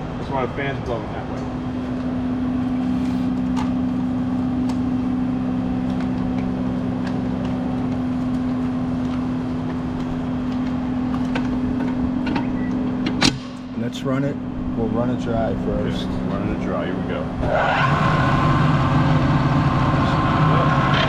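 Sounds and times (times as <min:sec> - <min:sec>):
electric fan humming: 0:00.0 - 0:21.0.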